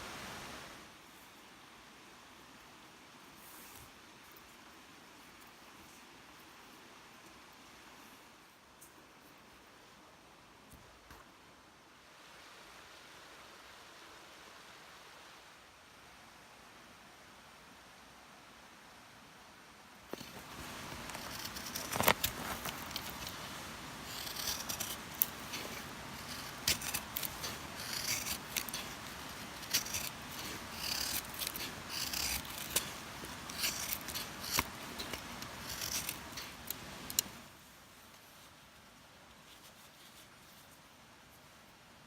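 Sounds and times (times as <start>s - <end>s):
handling rustling: 20.1s - 37.4s.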